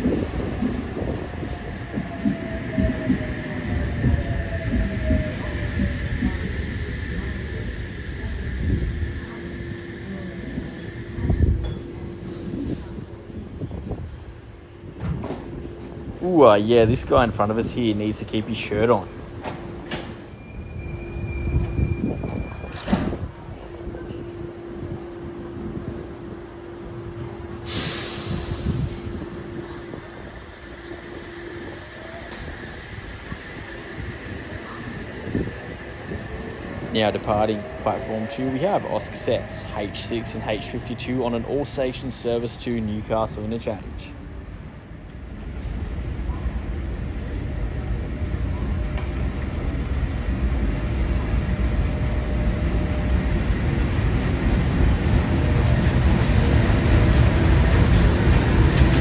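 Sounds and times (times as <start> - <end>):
electric train hum and rumble: 0.0 - 59.0
compressed air hiss: 27.6 - 29.4.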